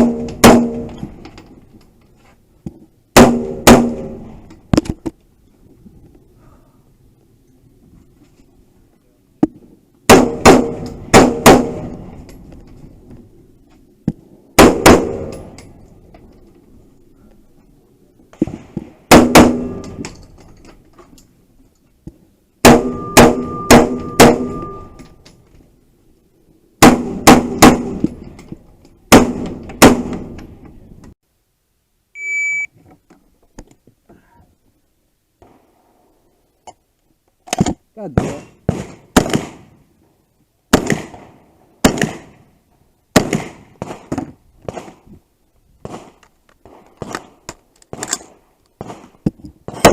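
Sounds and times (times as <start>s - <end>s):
gunshots: 0.0s - 1.0s, 3.2s - 4.4s, 10.1s - 12.2s, 14.6s - 15.5s, 18.4s - 20.1s, 22.6s - 24.9s, 26.8s - 28.2s, 29.1s - 30.3s, 38.1s - 39.8s, 40.7s - 42.4s, 43.1s - 45.0s, 45.8s - 49.9s
steel targets ringing: 22.8s - 25.2s
short high beep: 22.9s - 25.0s, 32.2s - 32.7s.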